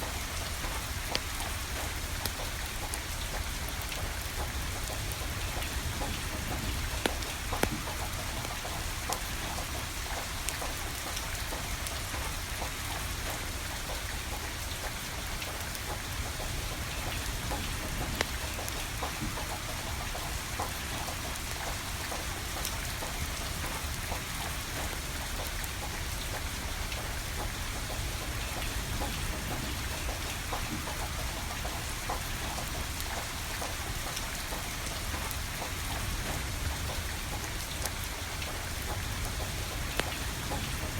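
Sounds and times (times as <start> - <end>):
steady rain falling: 0.0 - 40.9
wood fire crackling: 0.2 - 11.0.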